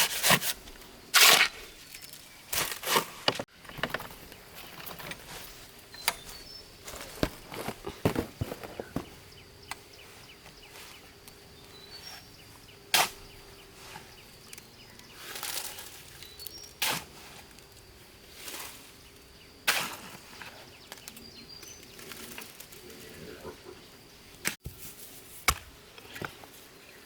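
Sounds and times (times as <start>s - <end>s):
scraping and shuffling: 2.5s - 12.7s
stone set down on stone: 7.1s - 9.1s.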